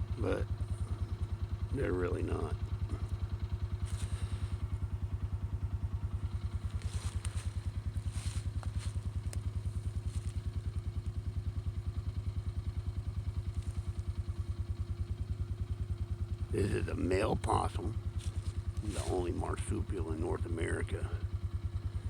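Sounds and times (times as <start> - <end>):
small engine chugging: 0.0 - 22.0
light clicks and rustles: 6.4 - 11.2.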